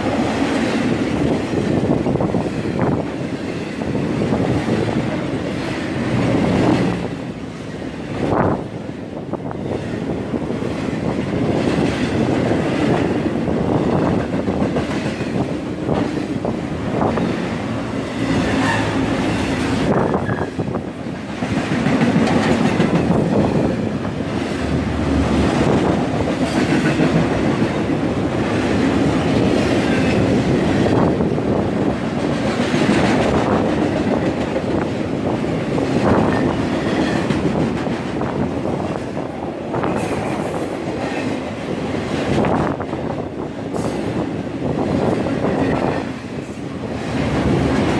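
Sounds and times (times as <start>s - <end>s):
freight train cars rumbling: 0.0s - 47.9s
train wheels clacking on rail joints: 9.3s - 47.9s.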